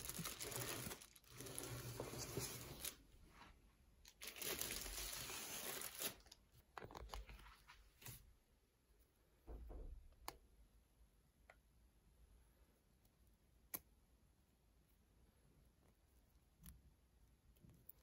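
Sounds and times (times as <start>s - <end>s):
packaging tearing and crumpling: 0.0s - 3.0s, 4.1s - 6.4s.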